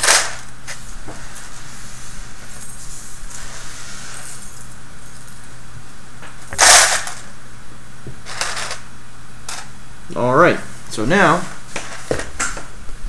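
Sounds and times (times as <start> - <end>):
plastic parts clattering: 0.0 - 0.5, 6.6 - 7.3, 8.2 - 8.8
steady low hum: 0.0 - 13.0.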